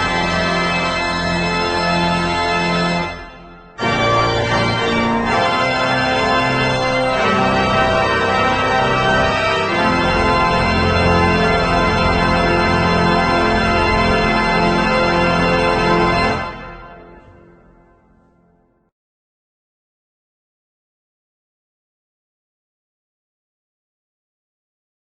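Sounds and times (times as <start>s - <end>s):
organ chords: 0.0s - 18.5s.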